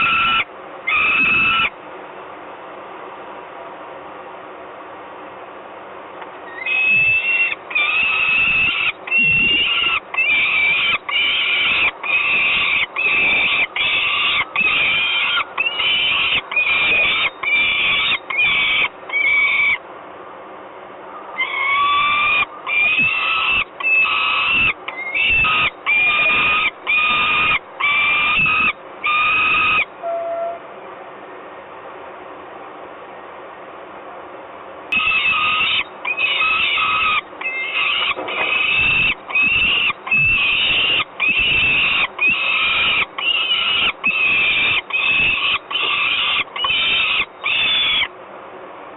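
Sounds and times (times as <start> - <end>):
falcon screaming: 0.0 - 1.8, 6.5 - 19.8, 21.4 - 29.9, 35.0 - 48.1.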